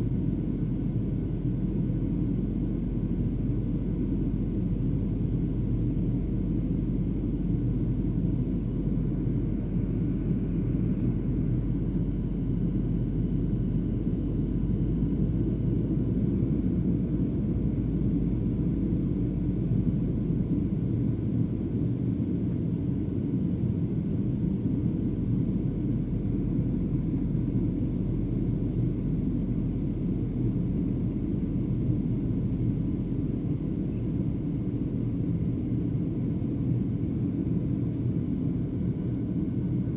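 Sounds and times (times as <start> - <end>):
jet engine and airflow rumble: 0.0 - 39.9.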